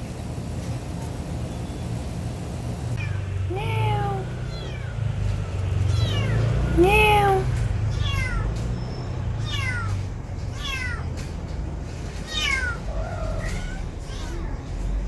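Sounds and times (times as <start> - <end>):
cat meowing: 3.0 - 5.0, 5.9 - 11.2, 12.2 - 14.7.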